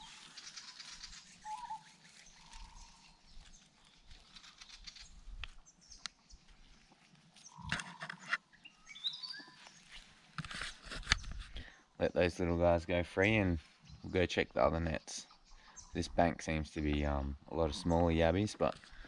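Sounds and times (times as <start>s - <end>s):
small birds chirping and whistling: 0.0s - 6.4s, 8.6s - 10.1s, 14.9s - 16.0s
footsteps on dry leaves: 0.0s - 11.6s.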